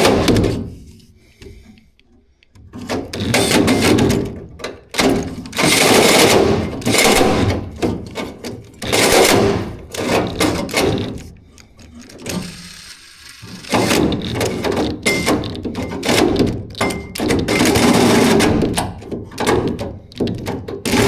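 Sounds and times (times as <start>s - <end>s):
power tool cutting panel: 12.1s - 15.4s.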